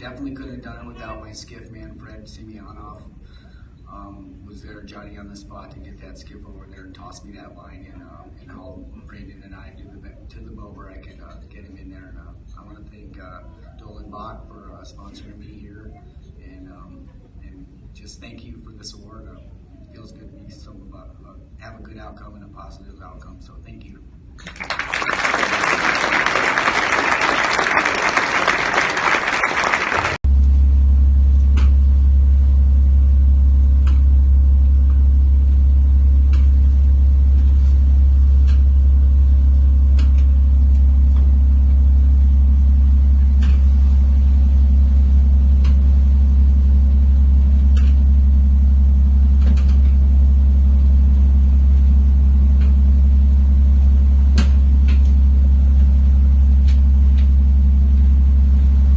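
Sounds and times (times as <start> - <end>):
audience applauding: 24.4 - 30.2.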